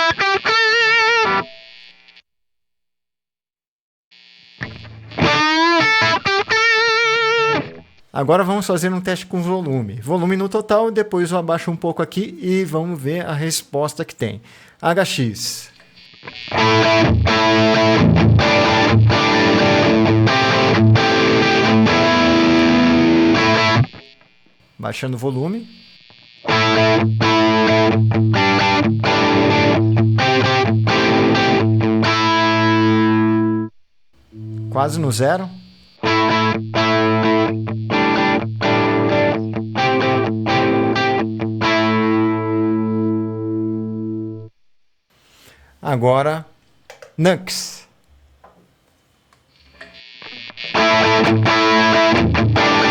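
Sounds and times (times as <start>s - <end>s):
distorted electric guitar chords: 0.0s - 1.8s, 4.6s - 8.0s, 15.8s - 24.3s, 25.7s - 44.5s, 49.6s - 52.9s.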